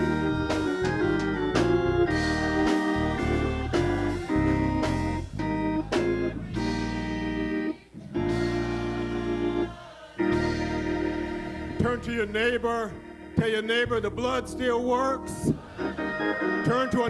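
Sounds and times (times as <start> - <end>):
organ chord hits: 0.0 - 17.0.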